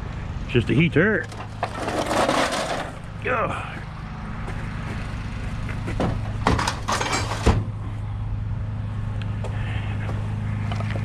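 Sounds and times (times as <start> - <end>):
truck engine idling: 1.1 - 8.3
scrap clattering: 1.2 - 3.2, 5.9 - 7.7.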